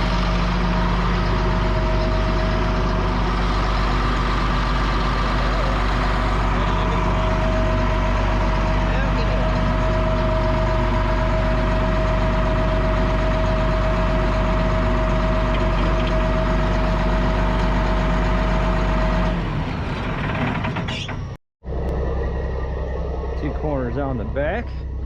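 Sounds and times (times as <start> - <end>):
steady whine: 0.0 - 17.8, 21.7 - 25.0
diesel engine idling: 0.0 - 25.0.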